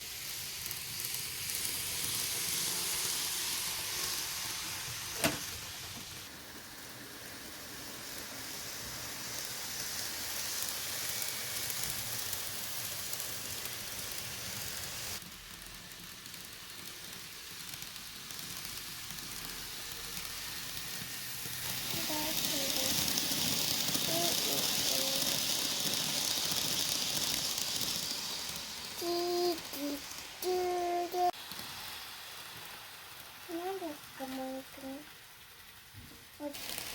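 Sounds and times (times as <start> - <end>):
model train rolling on track: 0.0 - 36.9.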